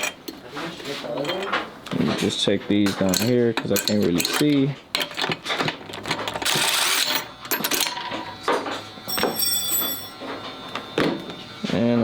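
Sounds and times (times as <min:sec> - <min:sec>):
hand tools clinking on metal: 0:00.0 - 0:00.4, 0:01.1 - 0:01.7, 0:02.8 - 0:08.2, 0:09.1 - 0:10.2
short high metallic ring: 0:09.1 - 0:10.2.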